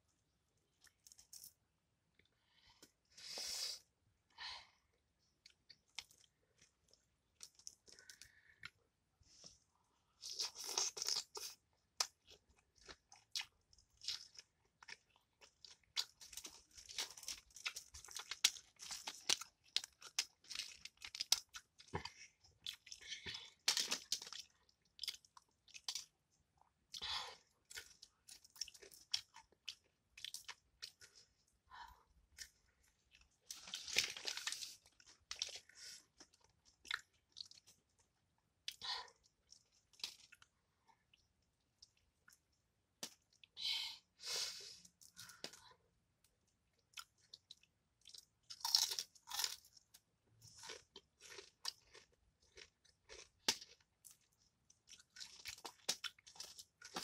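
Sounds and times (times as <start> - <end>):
chewing crispy fried fish: 10.2 - 31.3, 32.3 - 42.5, 46.7 - 57.0.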